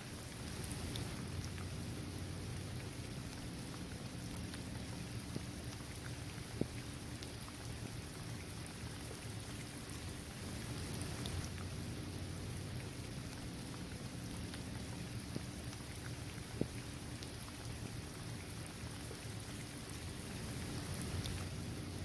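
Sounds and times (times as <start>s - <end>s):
rain falling: 0.0s - 22.0s
individual raindrops ticking: 10.6s - 22.0s.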